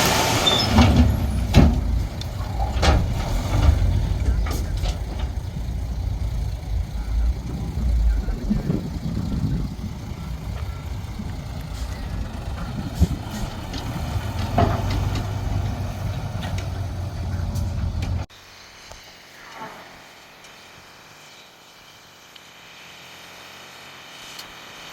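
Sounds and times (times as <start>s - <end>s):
diesel engines rumbling: 0.0s - 18.3s.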